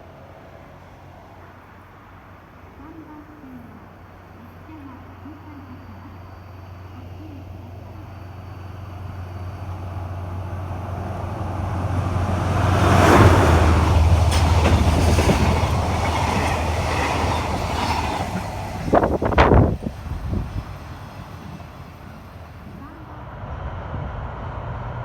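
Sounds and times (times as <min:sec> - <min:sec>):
freight train passing: 0:00.0 - 0:25.0
wheels clattering over rails: 0:10.7 - 0:23.0.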